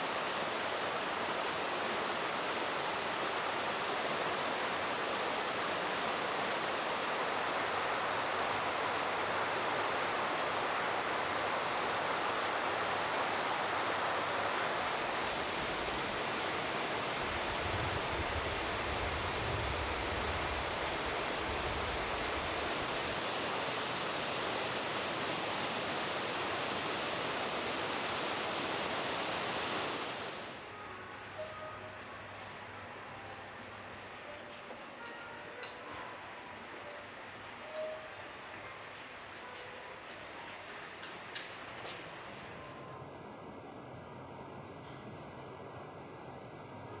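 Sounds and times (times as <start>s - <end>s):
falling water rushing: 0.0s - 30.8s.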